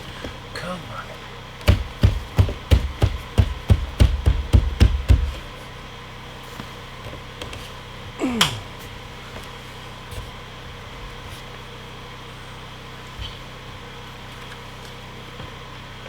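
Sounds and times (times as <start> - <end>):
hammer blows: 1.6 - 5.6.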